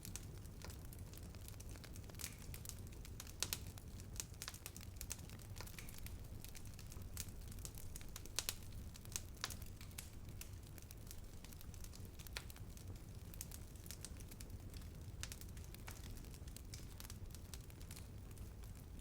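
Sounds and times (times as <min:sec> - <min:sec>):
fire crackling and popping: 0:00.0 - 0:19.0
low fire rumble: 0:00.0 - 0:19.0.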